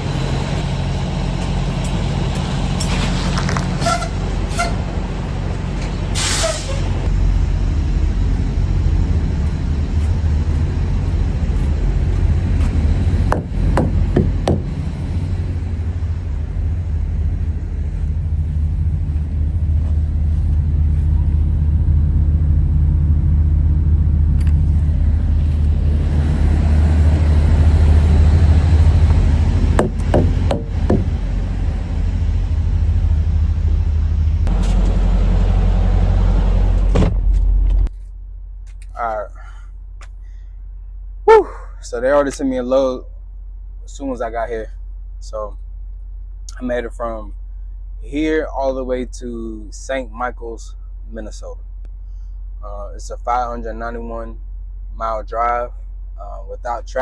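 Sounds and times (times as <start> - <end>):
truck diesel engine droning: 0.0 - 57.0
air brake hiss: 6.1 - 7.0.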